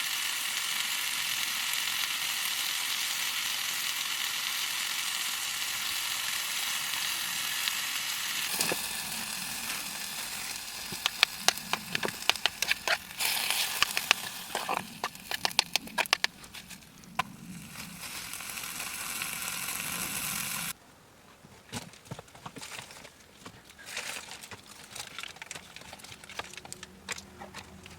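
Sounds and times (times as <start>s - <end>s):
food sizzling in a pan: 0.0s - 20.8s
sharp clicks and taps: 9.8s - 17.4s.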